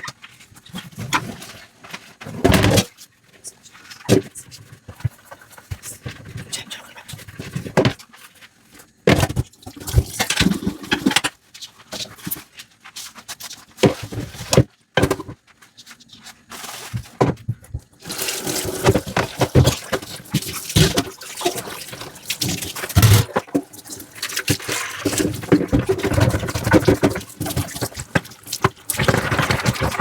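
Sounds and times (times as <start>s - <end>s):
sponge scrubbing: 18.0s - 30.0s
water running and splashing: 18.0s - 30.0s.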